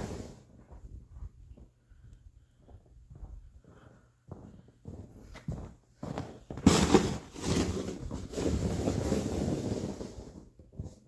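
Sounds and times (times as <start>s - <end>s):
snow shovel scraping snow: 6.7s - 10.3s.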